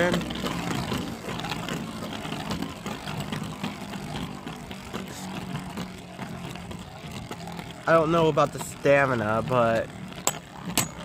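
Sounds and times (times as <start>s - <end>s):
spinning tops whirring: 0.0s - 11.0s
tops clicking against each other: 9.7s - 11.0s.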